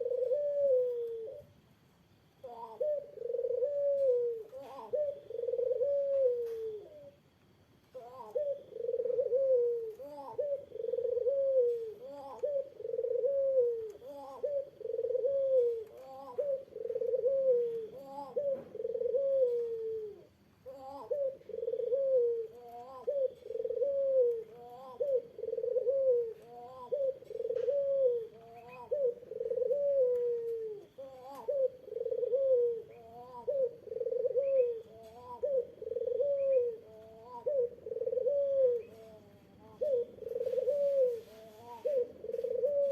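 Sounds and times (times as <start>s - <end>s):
dove cooing: 0.0s - 1.6s, 2.4s - 42.9s.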